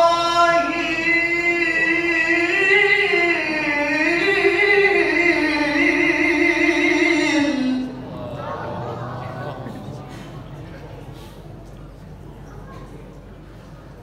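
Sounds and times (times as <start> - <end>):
man reciting melodically: 0.0 - 8.6.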